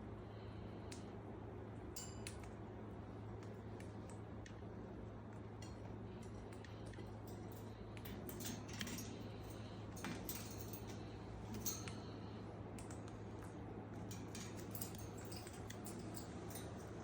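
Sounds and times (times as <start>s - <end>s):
steady low hum: 0.0s - 17.0s
metallic clinks and jingles: 7.2s - 12.2s, 14.0s - 17.0s.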